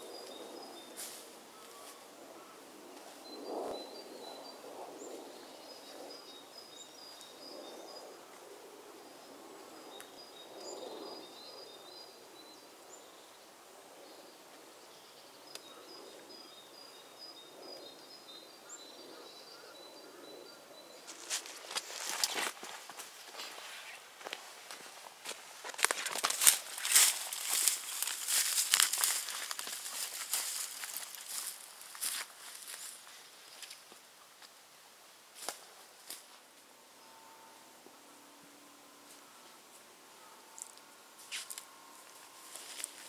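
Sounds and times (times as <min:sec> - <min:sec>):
songbird singing: 0:00.0 - 0:34.3
soft low background noise: 0:00.0 - 0:43.0
footsteps: 0:21.0 - 0:34.5, 0:40.6 - 0:43.0.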